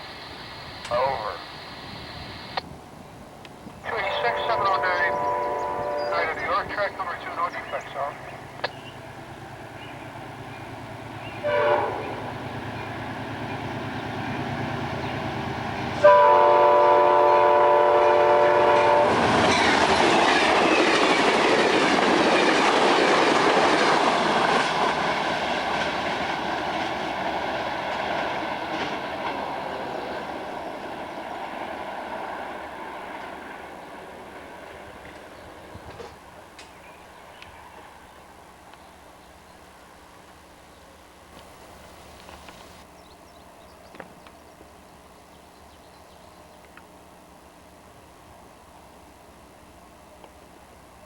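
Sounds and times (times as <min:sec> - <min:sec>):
diesel locomotive humming: 0:00.0 - 0:51.0
train wheels on rails: 0:00.0 - 0:51.0
train air horn blast: 0:04.0 - 0:06.6, 0:11.4 - 0:12.3, 0:16.0 - 0:19.3.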